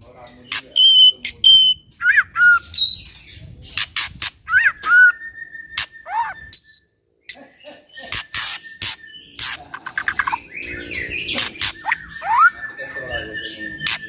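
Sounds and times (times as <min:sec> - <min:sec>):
songbird whistling song: 0:00.4 - 0:03.5, 0:04.4 - 0:14.0
harsh rasping bird notes: 0:03.8 - 0:14.0.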